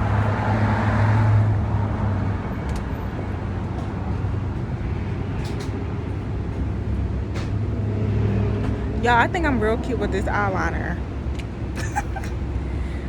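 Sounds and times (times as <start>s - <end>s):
vehicle passing: 0.0s - 11.7s
low engine hum of traffic: 0.0s - 13.0s.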